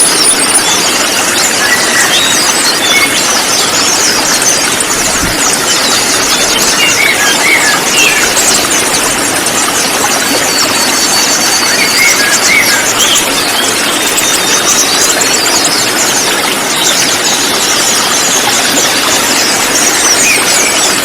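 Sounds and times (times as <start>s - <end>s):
songbirds chirping and twittering: 0.0s - 21.0s.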